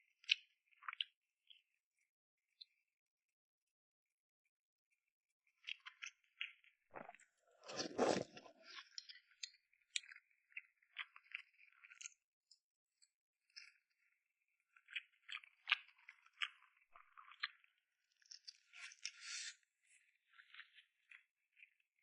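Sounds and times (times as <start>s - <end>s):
chewing with wet mouth clicks: 14.8s - 17.7s.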